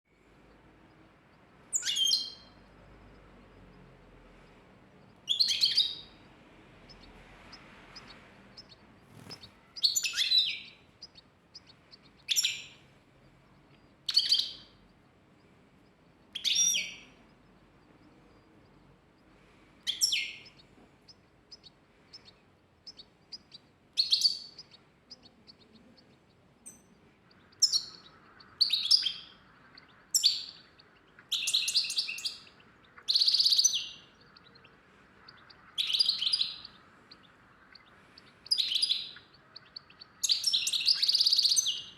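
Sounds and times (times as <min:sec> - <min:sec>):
songbird chirping: 0:00.0 - 0:41.9
faint steady hiss: 0:00.1 - 0:41.9.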